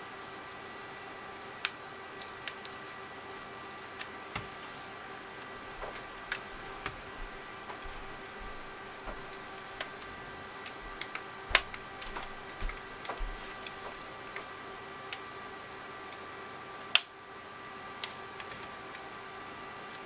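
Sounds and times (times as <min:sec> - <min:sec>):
small clicks and taps on plastic: 0:05.7 - 0:10.0, 0:10.6 - 0:14.5
loud clicks: 0:10.6 - 0:13.8.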